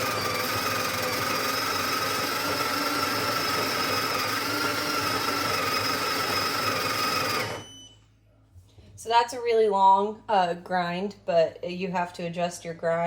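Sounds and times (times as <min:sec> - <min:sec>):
coffee grinder grinding beans: 0:00.0 - 0:07.9.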